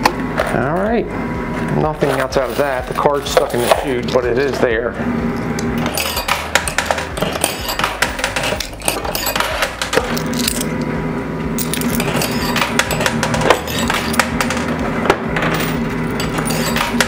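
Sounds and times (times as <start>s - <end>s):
music playing: 0.3s - 17.0s
coins clinking and dropping: 5.8s - 10.8s, 11.6s - 17.0s.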